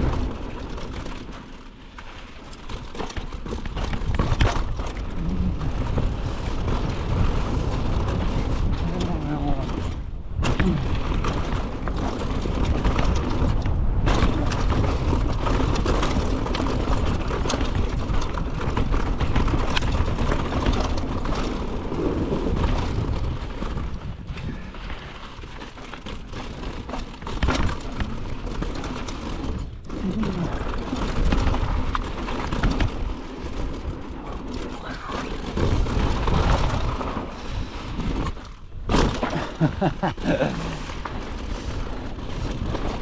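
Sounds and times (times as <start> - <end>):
bike rattling over bumps: 0.0 - 43.0
tyres rolling over dirt: 0.0 - 43.0
wind buffeting microphone: 3.4 - 25.4.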